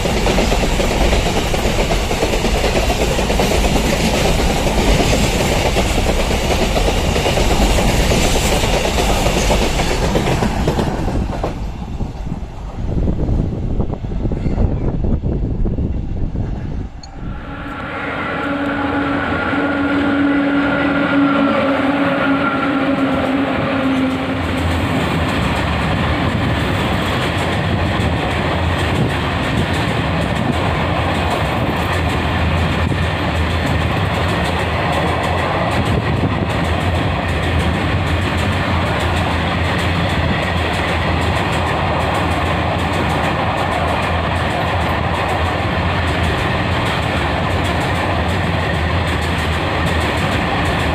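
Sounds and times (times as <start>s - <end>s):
freight train wagons rumbling: 0.0s - 50.9s
steady tones: 5.6s - 26.1s.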